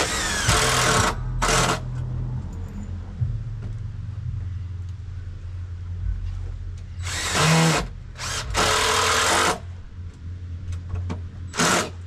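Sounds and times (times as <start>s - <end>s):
power drill bursts: 0.0s - 1.8s, 7.0s - 9.6s, 11.5s - 12.0s
steady low hum: 0.0s - 12.0s.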